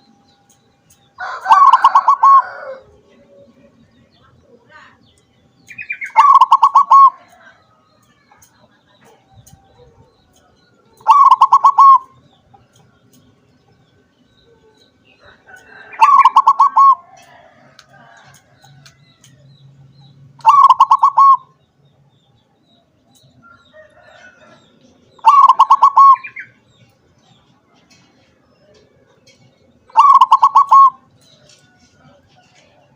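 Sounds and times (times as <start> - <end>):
dove cooing: 1.2 - 3.8, 6.0 - 7.4, 10.9 - 12.2, 15.7 - 18.2, 20.4 - 21.5, 25.2 - 26.6, 29.9 - 31.1.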